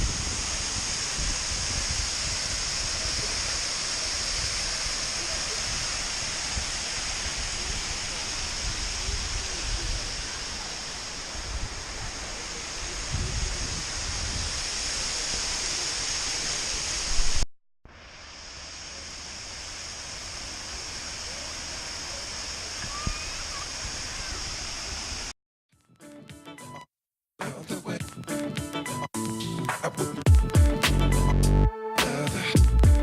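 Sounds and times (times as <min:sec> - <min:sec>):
wind rumble on microphone: 0:00.0 - 0:10.6, 0:11.2 - 0:15.5
waterfall pouring: 0:00.0 - 0:25.3.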